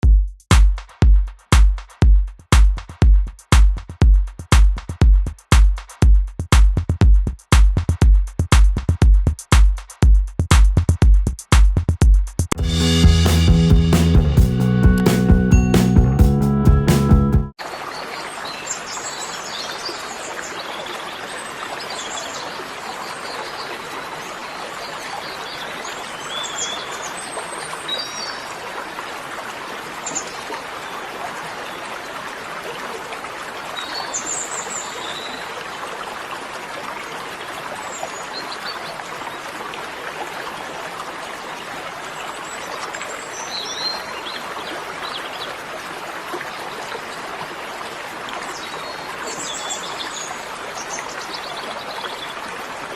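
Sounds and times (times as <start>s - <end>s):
water running like a stream: 17.5s - 52.9s.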